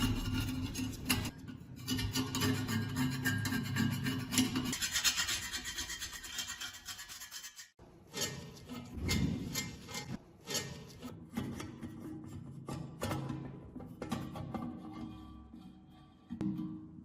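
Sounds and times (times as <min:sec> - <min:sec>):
scrubbing on rusty metal: 0:00.0 - 0:13.0.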